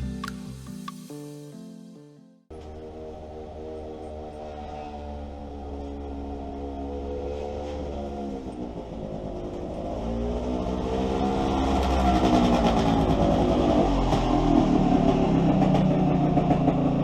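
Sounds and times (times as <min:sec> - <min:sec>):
mower engine humming: 0:00.0 - 0:01.3.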